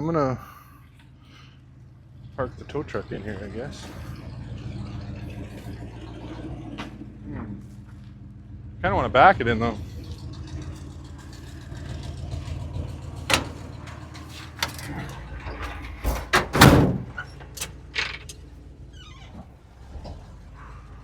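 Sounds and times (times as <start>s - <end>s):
truck engine running: 0.0s - 21.0s
sharp metal clunks and knocks: 13.3s - 18.5s.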